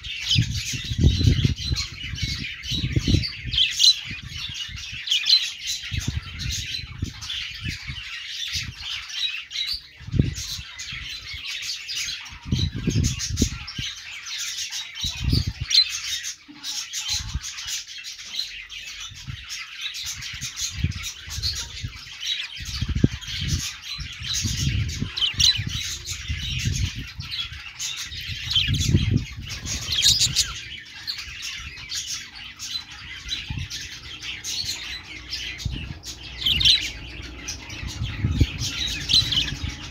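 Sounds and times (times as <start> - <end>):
budgerigars chirping and chattering: 0.0 - 39.9
bird squawks: 27.2 - 39.9.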